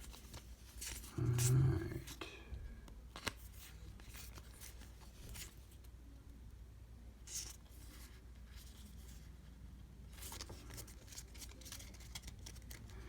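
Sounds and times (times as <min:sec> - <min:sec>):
trading cards rustling: 0:00.0 - 0:02.2, 0:03.1 - 0:05.8, 0:10.1 - 0:13.0.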